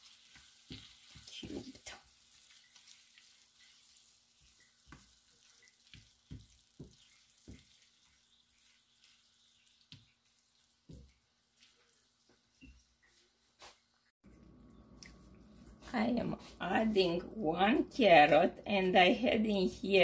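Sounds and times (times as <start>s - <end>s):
spatula stirring and scraping pan: 0.0s - 14.0s
food sizzling in a skillet: 0.0s - 14.1s.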